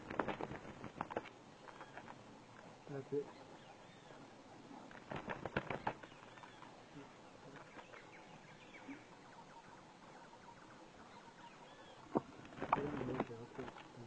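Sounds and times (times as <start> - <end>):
faint high bird chirps: 5.7 - 12.2.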